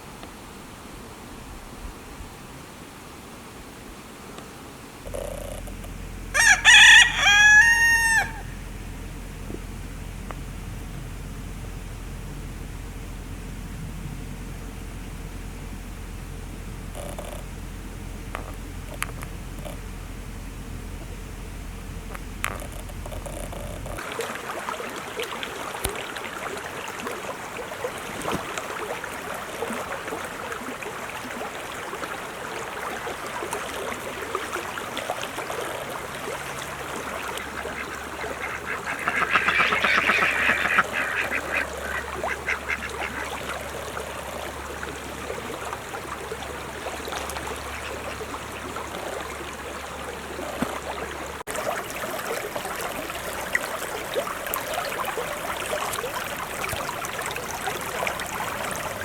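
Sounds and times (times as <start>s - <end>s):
ducks quacking: 5.1s - 8.8s, 37.3s - 43.8s, 47.4s - 48.9s.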